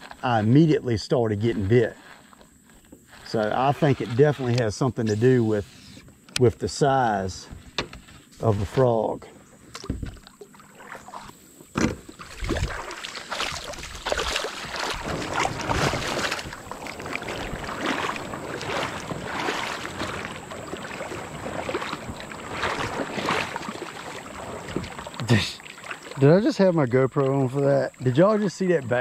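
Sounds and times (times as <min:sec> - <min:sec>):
paddle splashing in water: 0:09.5 - 0:29.0.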